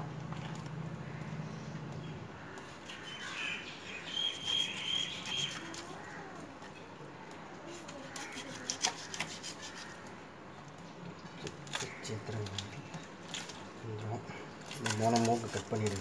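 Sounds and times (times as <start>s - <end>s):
bird high whistle: 2.9s - 5.6s
knife cutting through fish: 7.8s - 10.0s.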